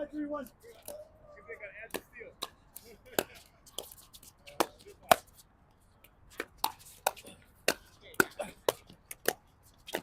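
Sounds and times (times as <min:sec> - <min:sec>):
paddles hitting plastic ball: 0:06.3 - 0:10.0.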